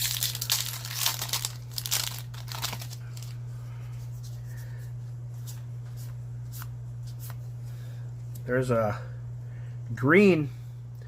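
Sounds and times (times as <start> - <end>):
foil wrapper crinkling and tearing: 0.0 - 3.4
low electrical hum: 0.0 - 11.0.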